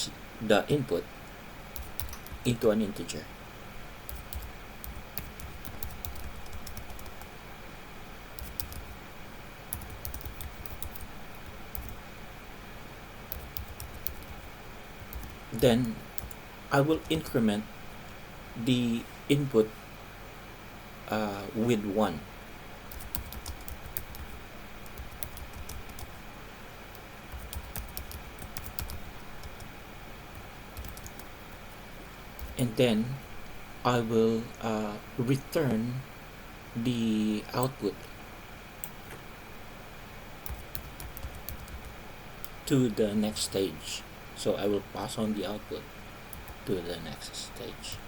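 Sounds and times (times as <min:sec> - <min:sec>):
steady low hum: 0:00.0 - 0:48.0
computer keyboard typing: 0:01.8 - 0:02.5, 0:04.1 - 0:07.3, 0:08.4 - 0:09.0, 0:09.7 - 0:12.0, 0:13.3 - 0:16.4, 0:17.0 - 0:17.3, 0:22.9 - 0:26.2, 0:26.9 - 0:31.4, 0:32.4 - 0:32.6, 0:40.4 - 0:42.6, 0:46.3 - 0:46.7, 0:47.8 - 0:48.0.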